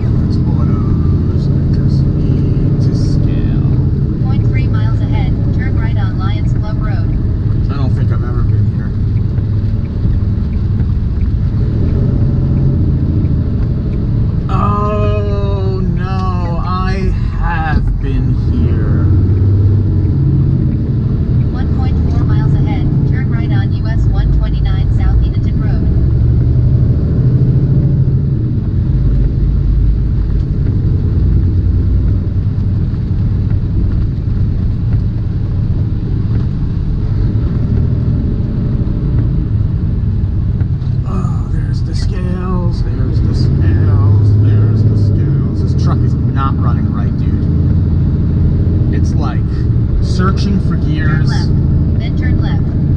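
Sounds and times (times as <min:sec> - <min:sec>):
truck diesel engine rumble: 0:00.0 - 0:52.9.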